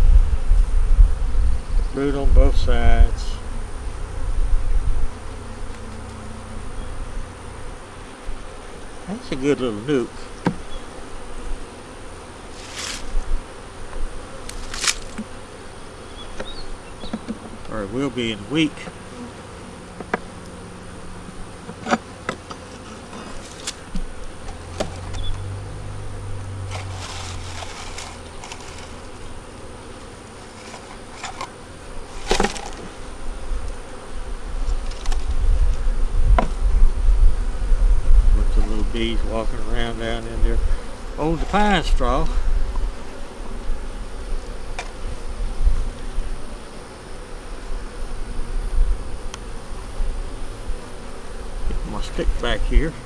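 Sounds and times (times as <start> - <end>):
bees buzzing: 0.0 - 53.0
hissing rustles: 0.0 - 53.0
hive equipment clicks: 14.4 - 15.3, 21.6 - 25.4, 30.4 - 32.9.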